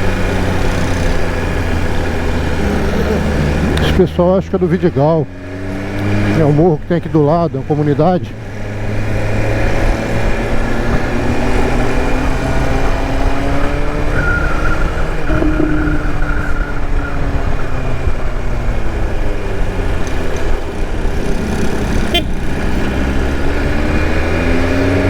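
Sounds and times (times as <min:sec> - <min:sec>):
motorcycle engine running: 0:00.0 - 0:04.0
road and traffic noise: 0:00.0 - 0:25.0.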